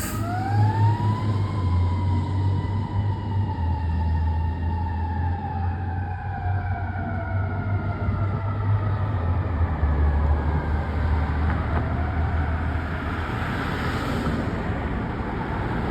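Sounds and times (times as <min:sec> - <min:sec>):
diesel engine rumbling: 0:00.0 - 0:00.7
road and traffic noise: 0:00.0 - 0:15.9.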